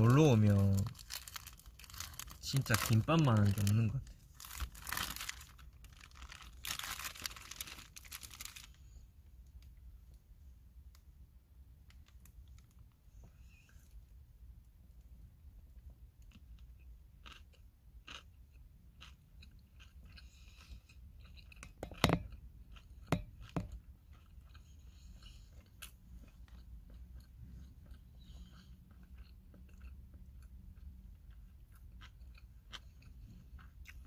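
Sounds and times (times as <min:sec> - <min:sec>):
chewing and biting food: 0:16.2 - 0:34.0.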